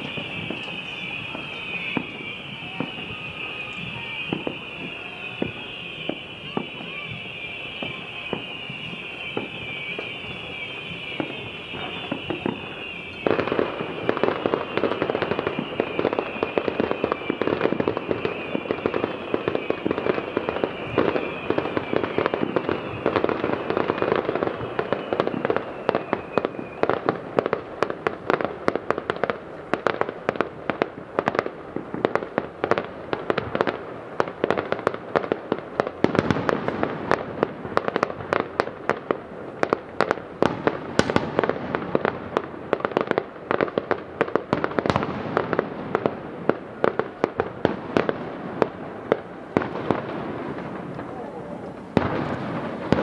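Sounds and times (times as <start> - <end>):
firework whistles sliding down: 0.0 - 28.4
distant fireworks bangs and crackling: 0.0 - 53.0.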